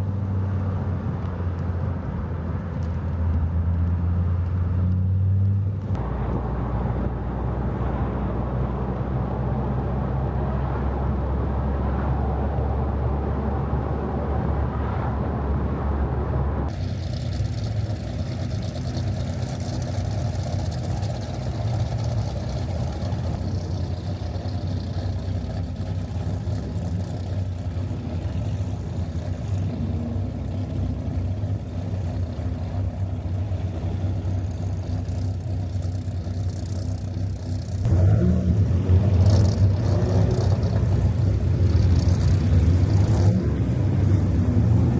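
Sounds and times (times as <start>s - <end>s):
road noise: 0.0s - 44.9s
car engine running: 15.6s - 44.9s.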